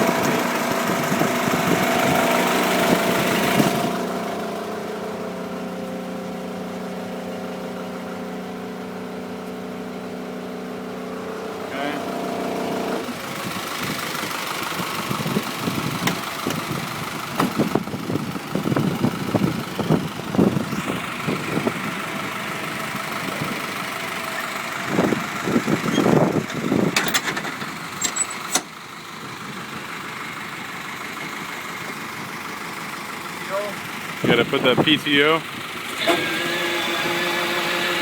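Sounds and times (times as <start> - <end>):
truck engine idling: 0.0 - 38.0.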